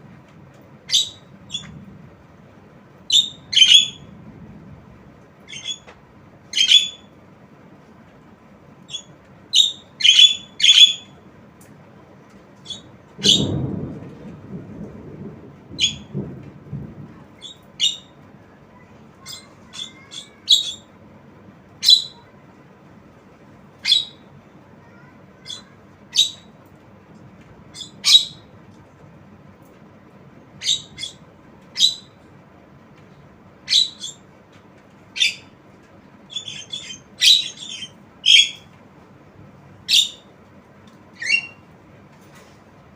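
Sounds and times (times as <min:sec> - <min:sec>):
low rumble: 0:01.2 - 0:06.4, 0:13.0 - 0:18.7
bird squawking: 0:03.2 - 0:04.0, 0:05.5 - 0:05.9, 0:06.5 - 0:07.0, 0:08.9 - 0:11.1, 0:19.2 - 0:20.9, 0:36.3 - 0:38.6.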